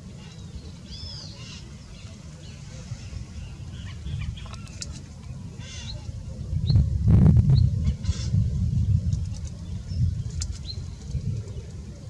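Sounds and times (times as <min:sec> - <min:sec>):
birds chirping: 0:00.0 - 0:06.9
low steady rumble: 0:00.0 - 0:12.0.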